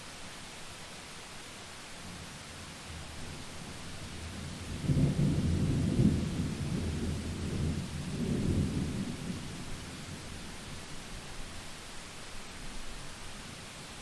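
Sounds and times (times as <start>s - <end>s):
steady rain: 0.0s - 14.0s
rolling thunder: 4.4s - 10.3s.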